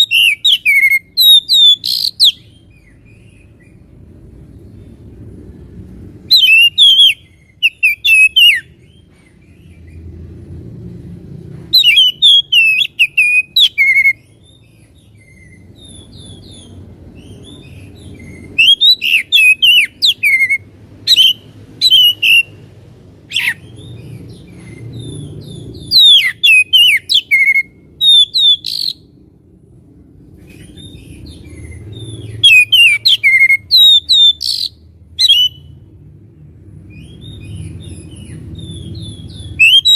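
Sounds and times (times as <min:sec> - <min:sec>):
bird singing whistled phrases: 0:00.0 - 0:02.6, 0:06.3 - 0:08.7, 0:11.8 - 0:14.3, 0:18.2 - 0:22.6, 0:25.8 - 0:29.1, 0:32.4 - 0:35.8, 0:38.6 - 0:39.9
low background rumble: 0:00.0 - 0:39.9.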